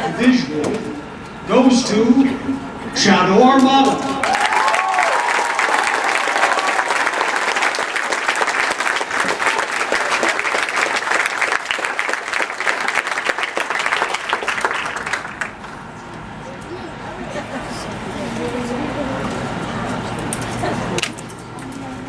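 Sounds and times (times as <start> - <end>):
crowd applauding: 3.9 - 15.8.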